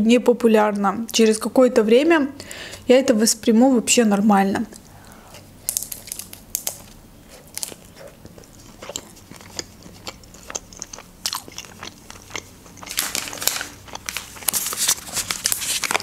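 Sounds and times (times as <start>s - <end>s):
biting and chewing flatbread wrap: 5.2s - 16.0s.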